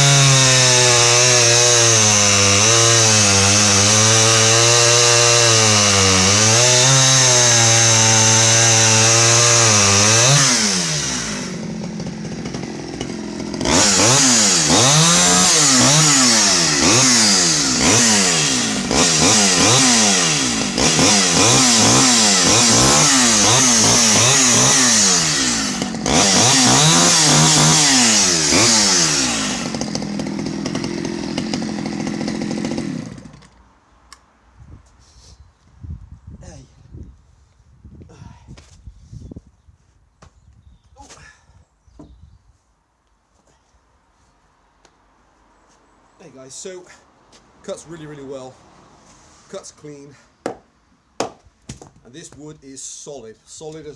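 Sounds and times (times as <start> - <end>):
chainsaw cutting hard wood: 0.0 - 33.6, 50.4 - 52.4.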